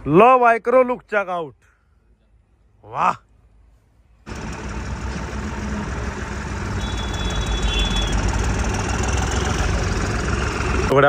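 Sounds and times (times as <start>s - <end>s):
bulldozer engine running: 4.2s - 11.0s.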